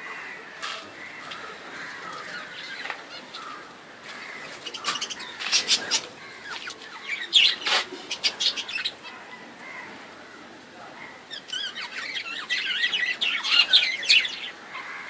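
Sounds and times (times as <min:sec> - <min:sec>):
budgerigars chattering and chirping: 0:04.2 - 0:09.6, 0:11.2 - 0:15.0.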